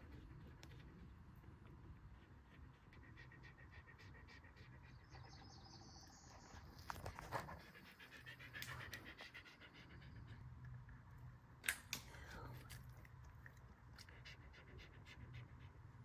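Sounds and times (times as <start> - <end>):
dog panting: 0.0 - 5.7, 6.3 - 10.7, 14.0 - 16.0.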